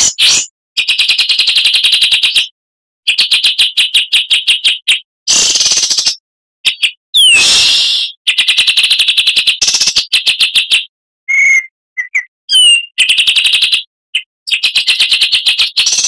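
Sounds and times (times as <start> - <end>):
bird singing: 4.6 - 8.6, 9.6 - 16.0
short clear bird whistles: 11.3 - 13.0.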